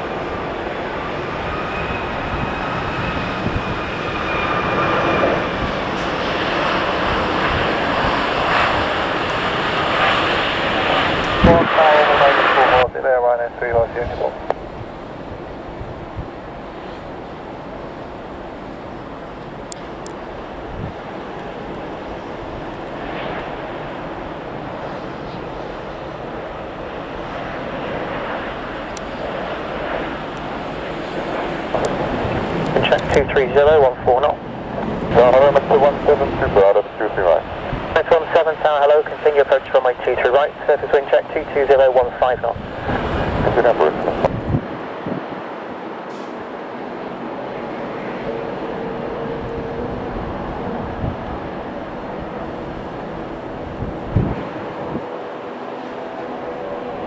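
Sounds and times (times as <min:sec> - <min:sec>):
airliner engines whining: 0:00.0 - 0:57.0
loud rushing noise: 0:01.4 - 0:12.9, 0:42.5 - 0:57.0.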